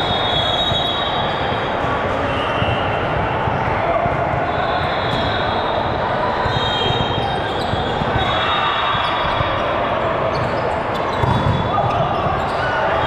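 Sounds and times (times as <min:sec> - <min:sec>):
balls bouncing and being struck: 0:00.5 - 0:13.0
high shoe squeaks: 0:04.6 - 0:13.0.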